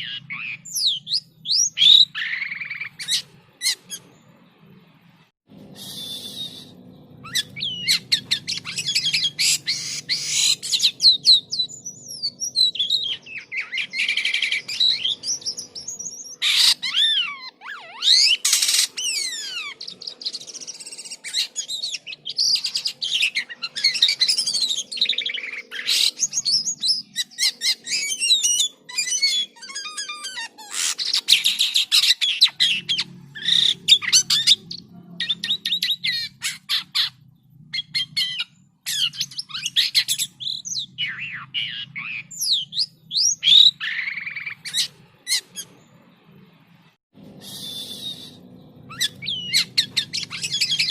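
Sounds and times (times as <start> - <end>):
starling singing: 0.0 - 4.9, 5.6 - 46.4, 47.2 - 50.9
harsh bird calls: 0.0 - 50.9.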